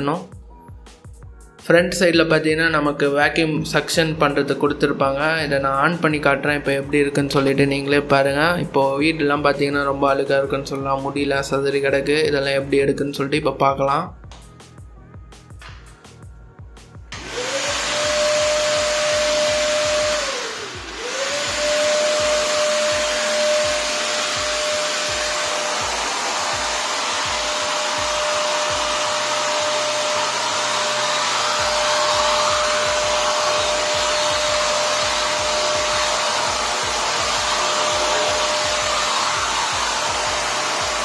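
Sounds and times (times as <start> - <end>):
vacuum cleaner motor whine: 17.1 - 41.0
air rushing through hose: 17.2 - 41.0.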